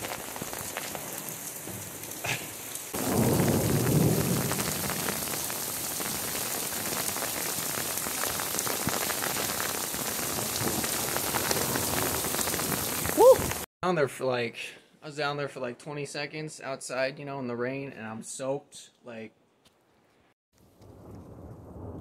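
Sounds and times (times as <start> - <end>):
heavy rain on deck and roof: 0.0 - 13.7
water streaming off eaves: 0.0 - 13.7.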